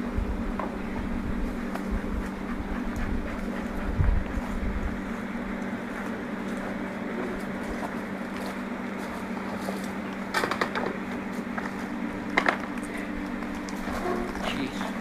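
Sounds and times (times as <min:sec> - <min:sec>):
bee colony buzzing hum: 0:00.0 - 0:15.0.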